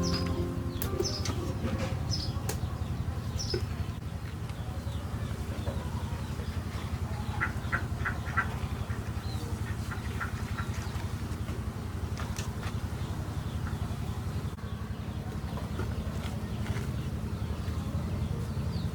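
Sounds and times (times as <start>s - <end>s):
birds chirping: 0.0s - 11.4s.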